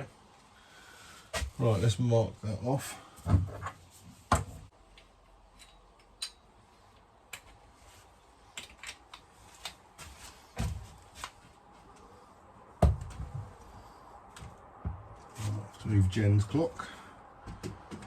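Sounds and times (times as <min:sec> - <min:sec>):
light clicks of tools: 0:04.9 - 0:07.6.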